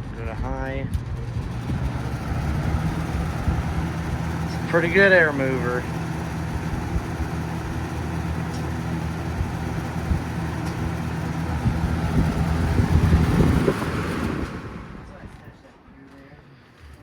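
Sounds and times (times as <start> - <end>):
box fan running: 0.0 - 15.8
low thumps: 9.3 - 15.3.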